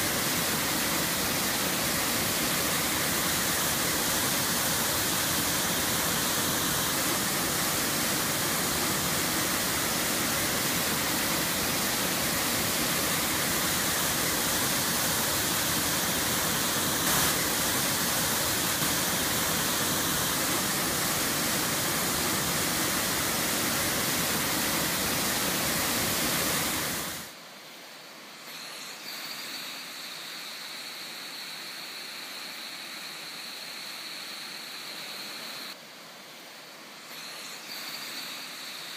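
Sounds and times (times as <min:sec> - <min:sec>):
water gushing from tunnel outlet: 0:00.0 - 0:27.3
faint high whine: 0:00.0 - 0:38.9
quiet hiss: 0:00.0 - 0:38.9.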